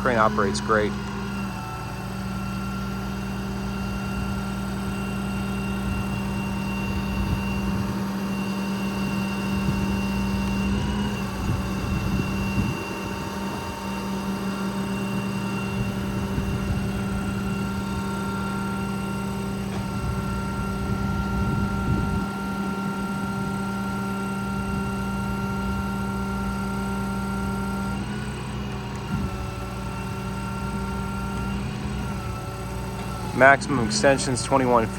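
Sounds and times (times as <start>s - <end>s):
diesel truck engine running: 0.0s - 34.9s
hydraulic system whining: 0.0s - 34.9s.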